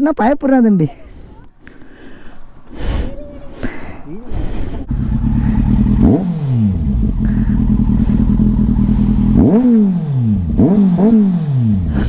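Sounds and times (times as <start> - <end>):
engine throttle blips: 4.4 - 12.0
motorcycle engine idling: 4.8 - 12.0.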